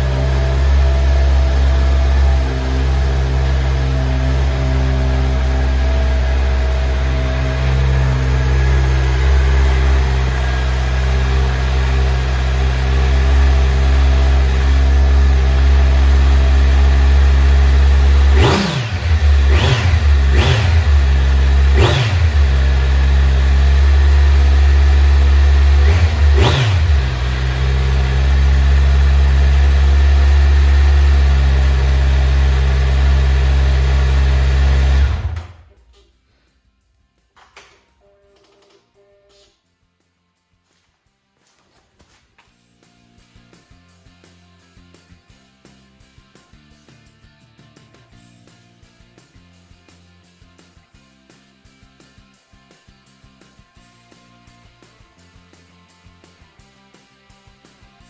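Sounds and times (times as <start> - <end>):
motorcycle engine idling: 0.0 - 35.8
motorcycle engine revving: 0.0 - 35.9.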